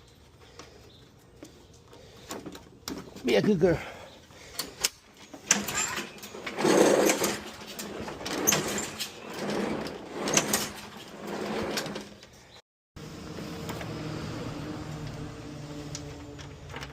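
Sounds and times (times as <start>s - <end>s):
lawn mower recoil starter whirring: 4.6s - 12.4s, 13.0s - 16.9s.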